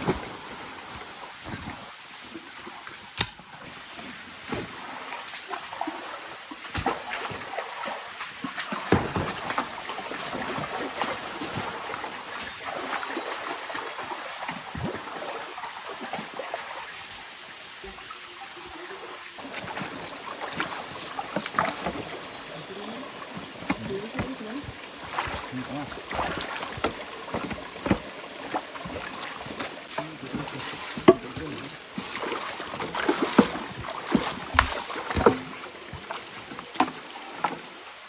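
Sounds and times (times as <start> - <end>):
rain pattering: 20.6 - 32.1.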